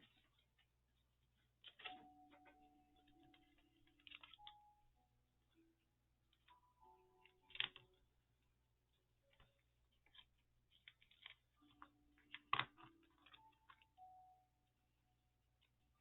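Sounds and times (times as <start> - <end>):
paper pieces tapping and rustling: 1.4 - 4.6, 6.4 - 8.0, 9.3 - 14.0.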